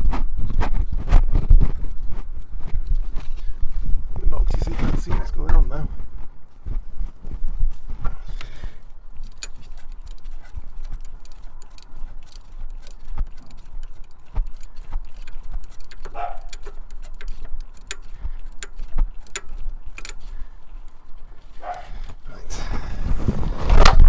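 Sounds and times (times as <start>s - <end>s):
metallic clicks of hand tools: 7.7s - 22.9s.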